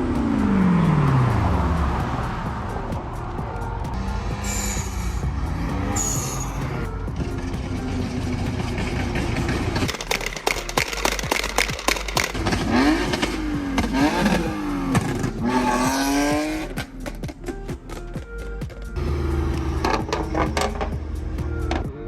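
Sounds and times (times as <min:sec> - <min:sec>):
car engine revving: 0:00.0 - 0:18.0, 0:18.9 - 0:22.0
background music: 0:00.0 - 0:22.0
exhaust crackles and pops: 0:07.6 - 0:22.0.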